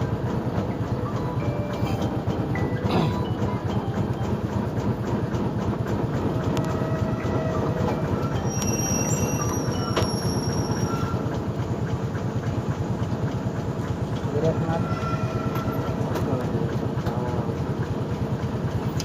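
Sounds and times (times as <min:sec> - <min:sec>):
thin high squeals: 0:08.4 - 0:11.2.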